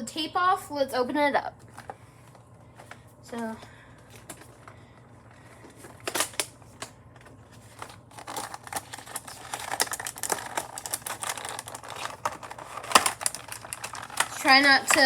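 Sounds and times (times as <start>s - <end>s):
crinkling cardboard and plastic: 1.6s - 15.0s
packaging clicks and scrapes: 4.0s - 15.0s.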